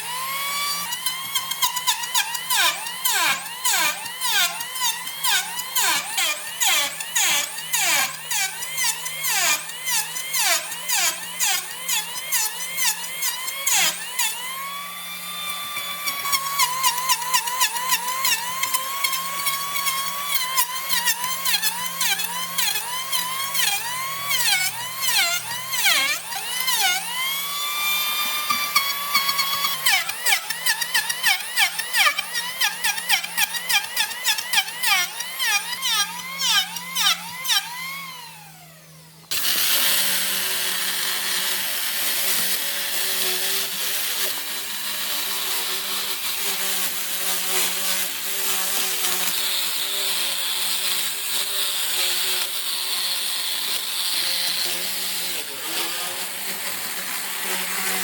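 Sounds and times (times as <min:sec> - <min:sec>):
high-speed power tool whining: 0:00.0 - 0:58.0
noisy power tool running: 0:00.0 - 0:58.0.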